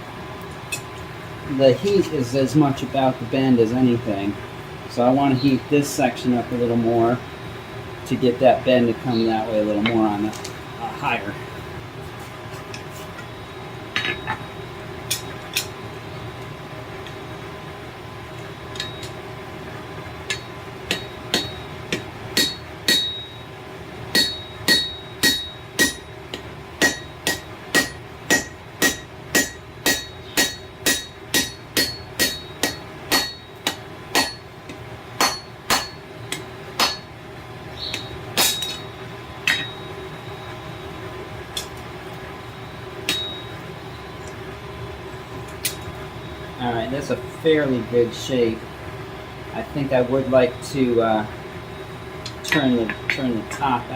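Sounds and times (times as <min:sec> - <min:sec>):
hammer ringing on anvil: 0:18.7 - 0:19.2, 0:20.3 - 0:23.5, 0:24.1 - 0:34.5, 0:35.2 - 0:37.1, 0:37.9 - 0:39.9, 0:43.0 - 0:43.6.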